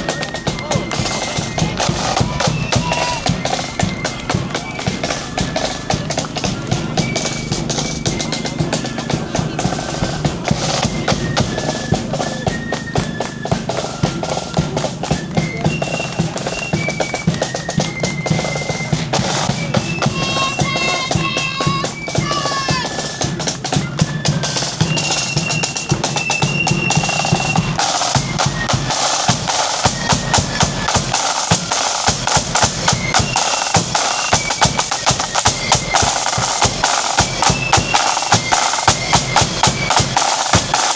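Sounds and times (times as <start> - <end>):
bass drum beat: 0.0 - 16.9
flutes playing: 0.0 - 40.9
snare drums rattling: 0.0 - 40.9.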